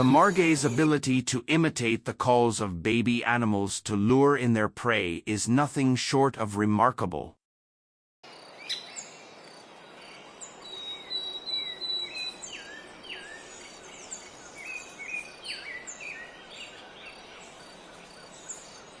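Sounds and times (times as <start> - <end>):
birds chirping and whistling: 0.0 - 1.0, 10.4 - 19.0.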